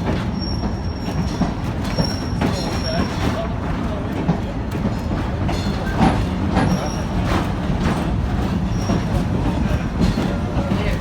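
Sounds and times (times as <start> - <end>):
wheels squealing: 0.0 - 3.9
train cars rumbling on track: 0.0 - 11.0
train clanks: 0.0 - 11.0.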